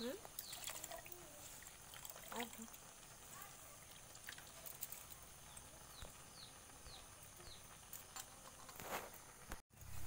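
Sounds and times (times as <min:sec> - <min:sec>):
faint outdoor ambience: 0:00.0 - 0:10.0.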